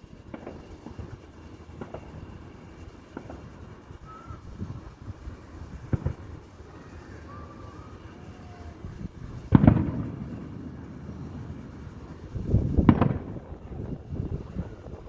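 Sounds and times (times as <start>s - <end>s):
fireworks bangs and crackles: 0.0s - 15.0s
fireworks boom: 5.7s - 6.8s, 9.0s - 15.0s.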